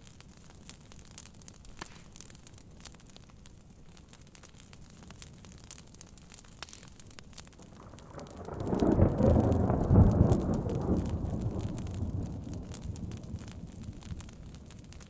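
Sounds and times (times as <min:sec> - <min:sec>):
soft rain: 0:00.0 - 0:15.0
wood fire crackling: 0:00.0 - 0:15.0
thunder rumbling: 0:07.6 - 0:15.0.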